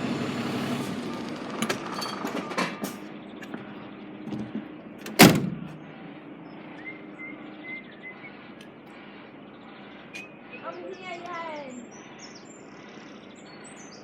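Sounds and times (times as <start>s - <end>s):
door slamming: 4.3s - 5.8s.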